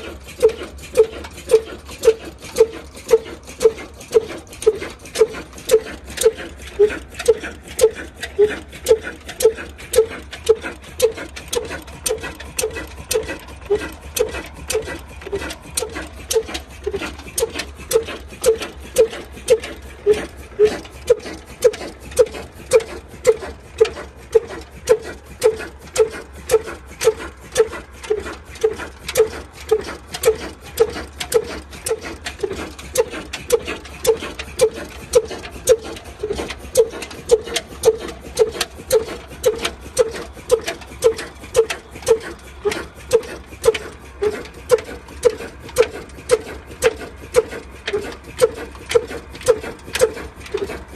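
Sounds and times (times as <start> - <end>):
diesel engine running slowly: 0.0 - 50.9.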